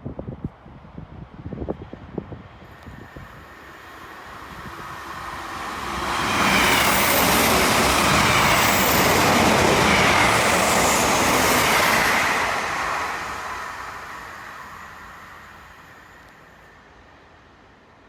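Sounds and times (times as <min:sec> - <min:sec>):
train passing at speed: 0:00.8 - 0:18.0
high whining tones: 0:02.8 - 0:17.0.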